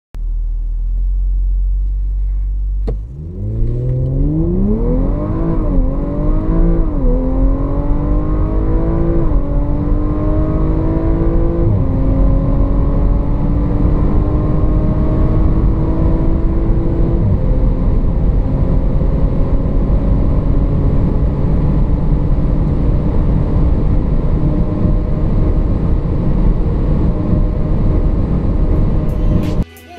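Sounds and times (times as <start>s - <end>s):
car engine accelerating through gears: 1.2s - 29.6s
car engine idling: 20.2s - 29.6s.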